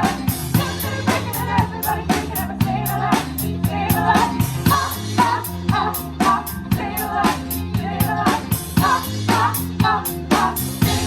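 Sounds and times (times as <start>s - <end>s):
rock band playing: 0.0s - 11.0s.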